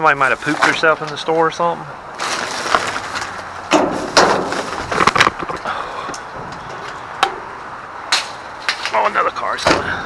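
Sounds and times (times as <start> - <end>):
rustling through goods: 0.0 - 7.1, 8.1 - 10.0
items knocking and clattering: 2.2 - 5.7.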